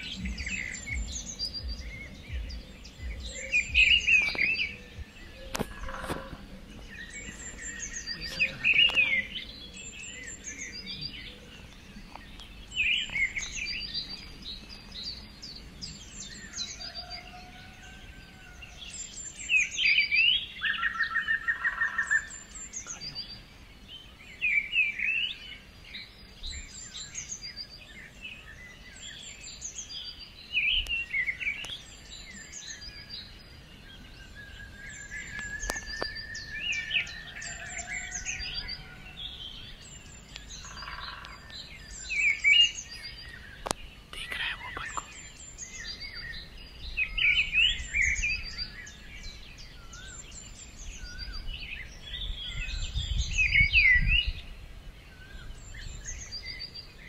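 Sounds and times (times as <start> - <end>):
bird song phrase: 0.0 - 57.0
forest birds calling: 0.0 - 57.0
long drawn bird whistle: 16.3 - 22.7, 34.0 - 41.3.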